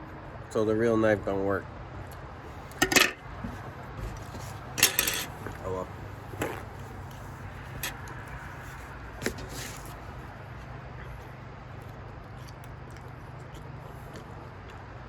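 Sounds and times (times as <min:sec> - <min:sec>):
low background hum: 0:00.0 - 0:15.0
cutlery scraping: 0:02.7 - 0:03.2, 0:04.2 - 0:05.6
cutlery clicking on plate: 0:02.8 - 0:03.2, 0:04.8 - 0:05.3.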